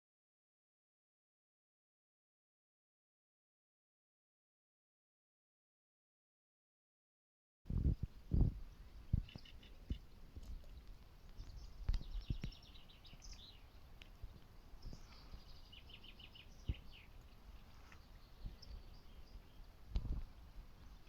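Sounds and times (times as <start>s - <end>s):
soft outdoor hiss: 7.7s - 21.0s
small birds trilling: 7.8s - 21.0s.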